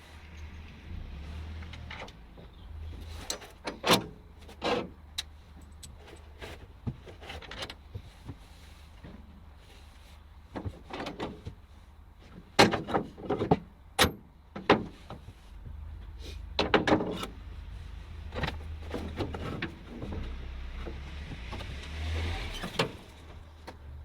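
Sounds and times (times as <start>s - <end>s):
steady low hum: 15.2s - 21.0s
irregular knocks and clatters: 18.2s - 21.9s.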